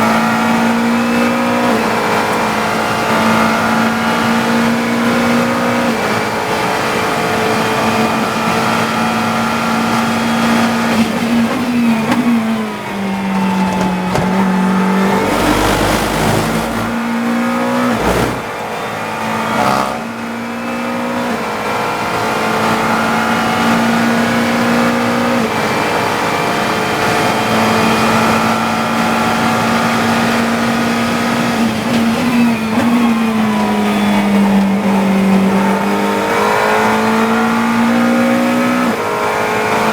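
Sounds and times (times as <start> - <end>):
race car engine at high revs: 0.0 - 39.9
rough rumble: 11.3 - 18.7
short thud: 13.3 - 17.0, 17.9 - 18.5.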